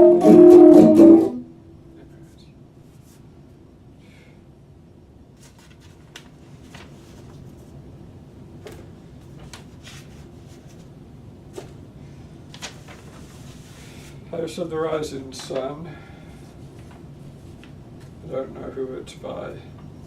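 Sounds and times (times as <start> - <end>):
guitar amplifier hum: 0.0 - 2.0.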